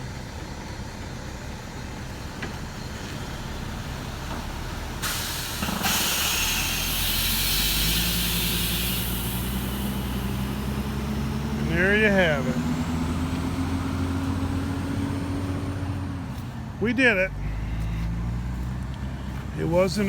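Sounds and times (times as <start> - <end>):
diesel engine idling: 0.0 - 20.0
air brake hiss: 5.0 - 10.5.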